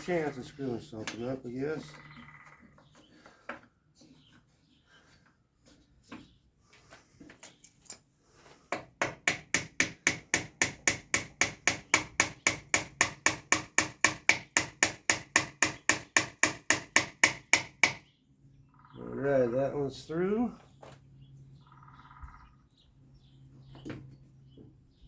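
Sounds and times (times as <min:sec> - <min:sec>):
hammer tapping on wood: 0:08.7 - 0:18.0.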